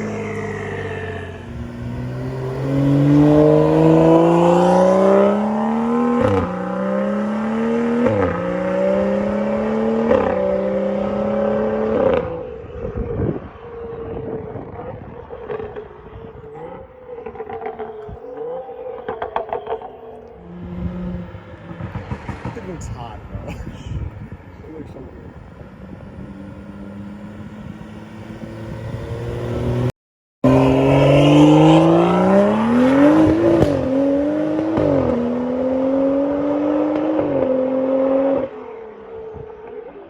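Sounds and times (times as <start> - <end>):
car engine accelerating hard: 0.0 - 40.0
exhaust crackles and pops: 21.6 - 23.5.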